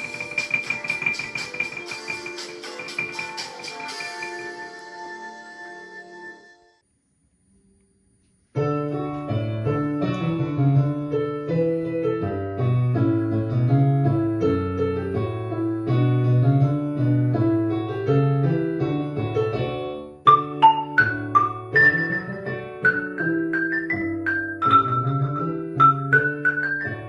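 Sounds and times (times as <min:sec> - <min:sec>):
piano keyboard music: 0:00.0 - 0:06.8, 0:08.6 - 0:27.0.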